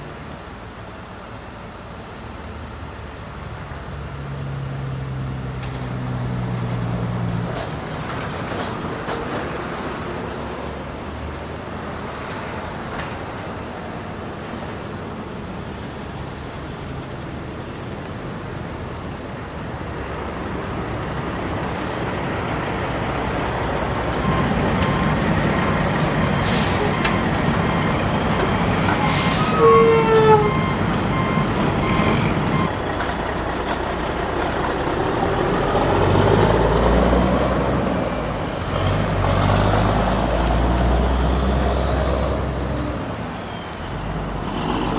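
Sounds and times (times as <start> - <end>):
heavy diesel machinery running: 24.2 - 32.7
high falling squeal: 24.2 - 32.7.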